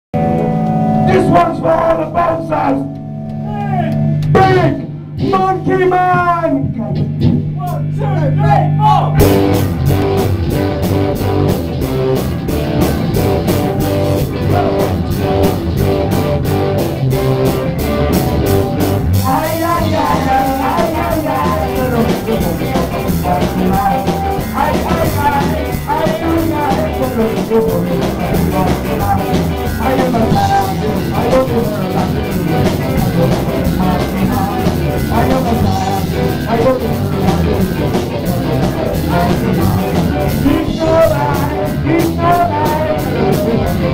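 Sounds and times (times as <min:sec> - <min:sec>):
rock band playing: 0:00.1 - 0:08.0, 0:09.1 - 0:43.9
wavering melody line: 0:00.2 - 0:05.1.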